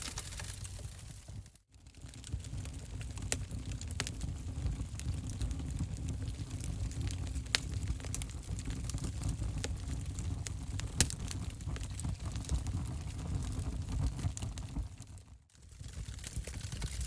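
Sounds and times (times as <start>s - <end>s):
wood fire crackling: 0.0s - 17.0s
low rumble of flame: 0.4s - 17.0s
sharp pops from fire: 3.0s - 15.3s.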